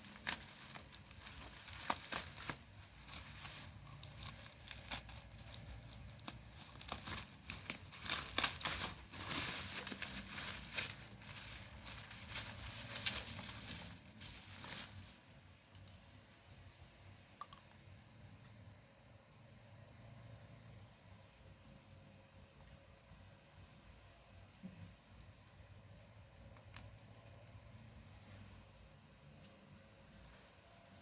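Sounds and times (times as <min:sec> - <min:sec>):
packaging crinkled and torn: 0:00.0 - 0:15.2.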